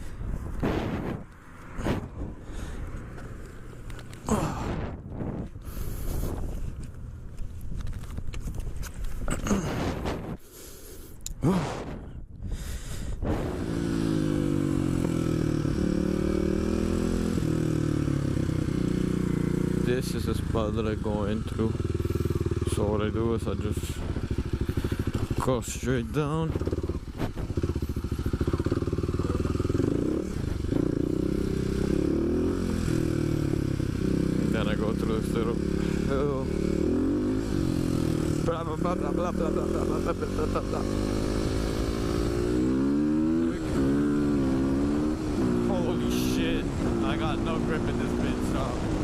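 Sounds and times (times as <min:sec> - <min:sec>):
scuffs and clicks: 0:06.3 - 0:10.3
motorcycle engine idling: 0:17.4 - 0:49.0.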